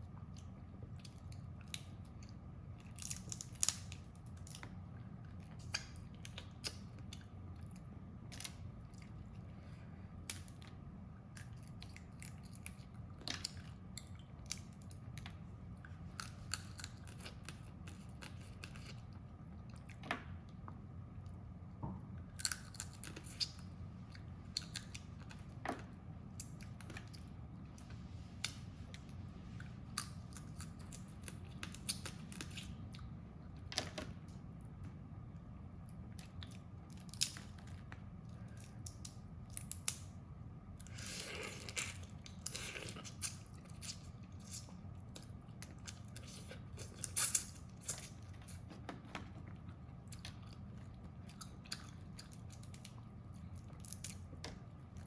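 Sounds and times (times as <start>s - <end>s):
low steady hum: 0.0s - 55.0s
chewing: 40.8s - 54.3s.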